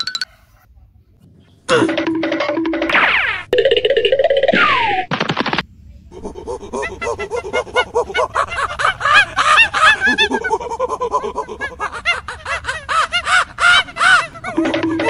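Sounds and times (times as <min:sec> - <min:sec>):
birds chirping: 0:06.3 - 0:15.0.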